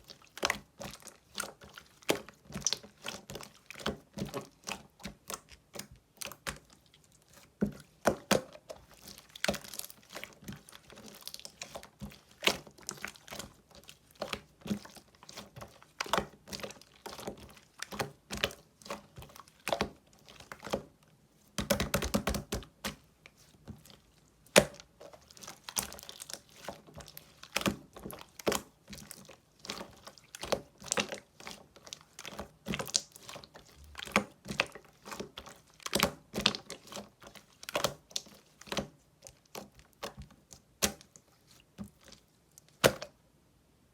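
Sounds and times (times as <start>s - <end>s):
slime squeezed wet pops: 42.8s - 43.1s.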